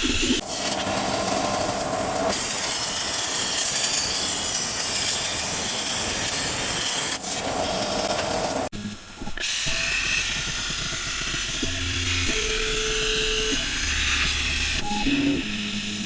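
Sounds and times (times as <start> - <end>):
plasma torch hissing: 0.3 - 8.7.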